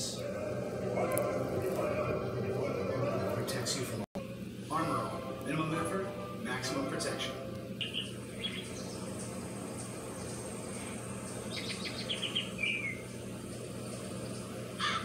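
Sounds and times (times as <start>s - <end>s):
steady low hum: 0.0s - 15.0s
bird chirping: 7.8s - 15.0s.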